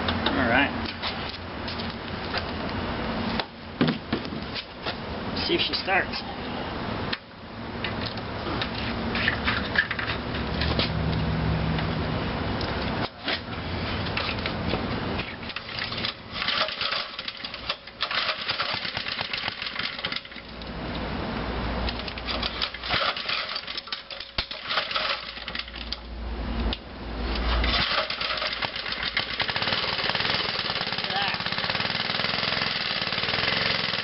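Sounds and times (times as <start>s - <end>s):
fast mechanical rattling: 15.3s - 20.5s, 21.9s - 26.0s, 27.4s - 34.0s
small engine cranking: 15.5s - 20.5s, 21.9s - 26.0s, 27.4s - 34.0s.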